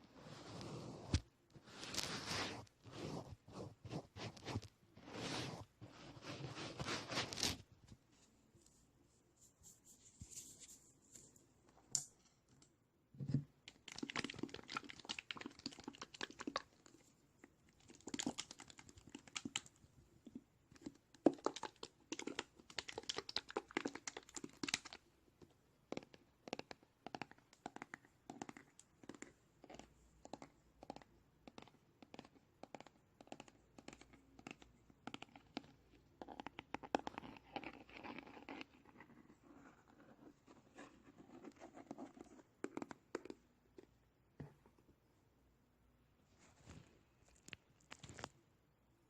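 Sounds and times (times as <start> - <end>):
scratching on an object: 0.2 - 7.6, 25.9 - 43.4.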